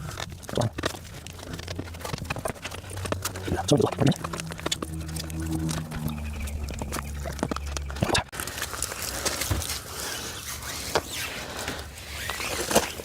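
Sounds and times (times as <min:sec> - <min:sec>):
low steady hum: 0:00.8 - 0:08.7.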